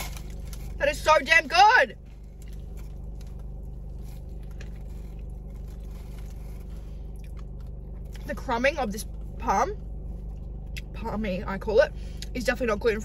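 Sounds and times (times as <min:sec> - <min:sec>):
low hum inside car: 0:00.0 - 0:13.0
person chewing food: 0:02.1 - 0:08.3.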